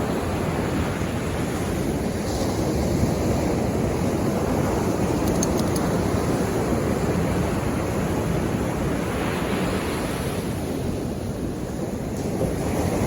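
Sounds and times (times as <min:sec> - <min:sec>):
sea waves breaking on shore: 0:00.0 - 0:13.0.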